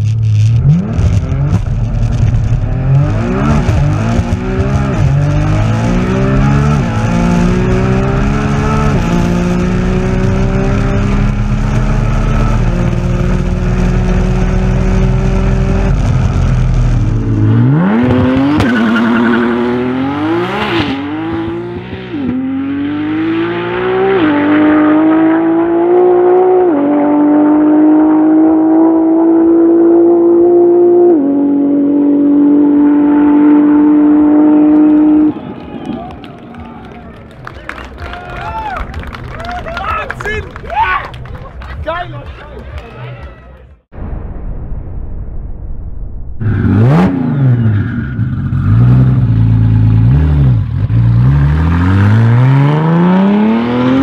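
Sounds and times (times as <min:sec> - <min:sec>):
car engine revving through gears: 0:00.0 - 0:35.4, 0:46.5 - 0:54.0.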